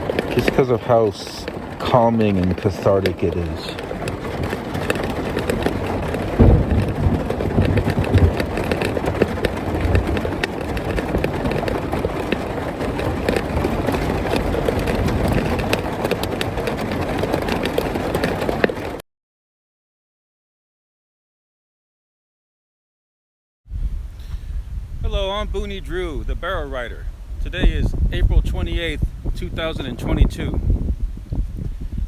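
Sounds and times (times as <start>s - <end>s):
rain drumming on car roof: 0.0s - 19.0s
heavy low thumps: 6.2s - 10.3s, 23.7s - 32.0s.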